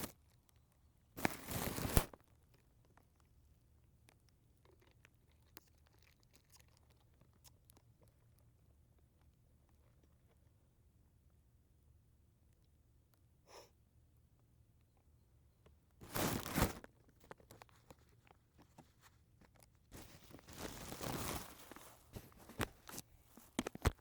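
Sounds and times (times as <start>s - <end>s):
rustling crunching noise: 1.2s - 2.6s, 16.0s - 24.0s.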